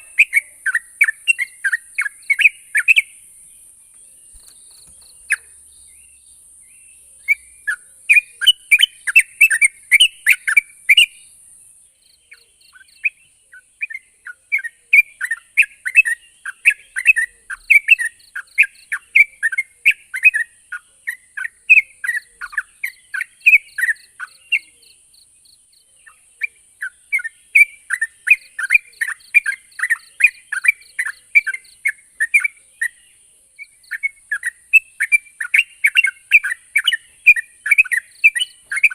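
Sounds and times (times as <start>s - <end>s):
bird chattering calls: 0.0s - 11.3s, 33.6s - 38.9s
faint steady hiss: 0.0s - 38.9s.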